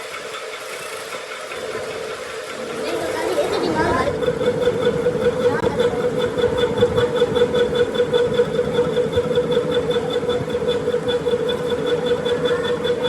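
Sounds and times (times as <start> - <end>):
fast high-pitched pulsing: 0.0 - 13.0
machine motor humming: 0.0 - 13.0.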